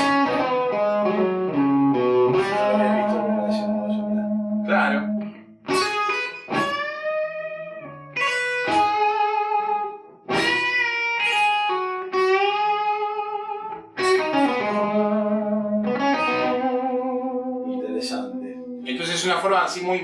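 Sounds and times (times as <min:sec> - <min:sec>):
electric guitar lead: 0:00.0 - 0:19.6.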